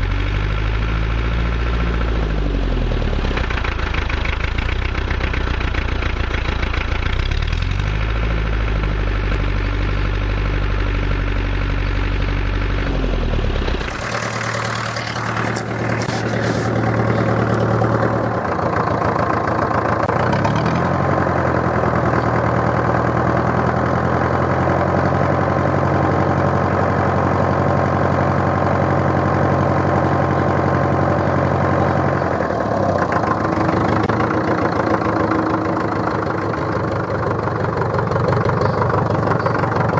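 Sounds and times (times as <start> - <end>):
tractor engine running: 0.0 - 39.9
rattling: 13.8 - 18.0.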